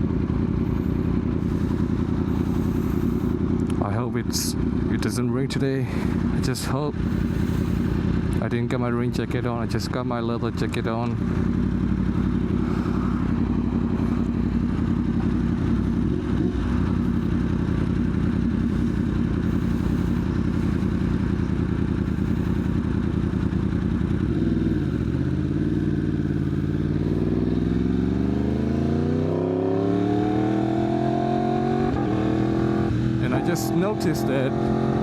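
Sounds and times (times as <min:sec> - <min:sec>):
motorcycle engine: 0:00.0 - 0:35.0.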